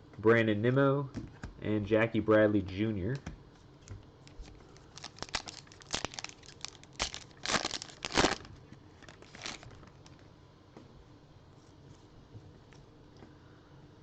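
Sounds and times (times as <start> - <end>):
card pack wrapper crinkling and tearing: 4.2 - 10.2.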